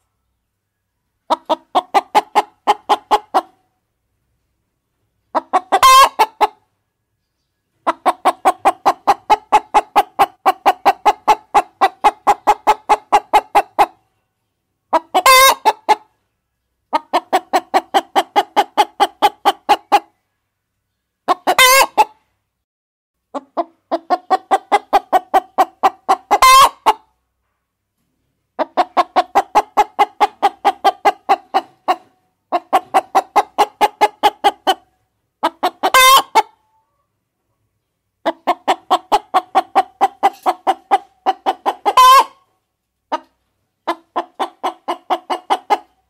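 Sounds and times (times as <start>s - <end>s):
hens clucking: 1.2s - 3.7s, 5.2s - 6.7s, 7.7s - 14.1s, 14.9s - 16.2s, 16.8s - 20.2s, 21.2s - 22.3s, 23.3s - 27.2s, 28.2s - 37.1s, 38.2s - 46.0s.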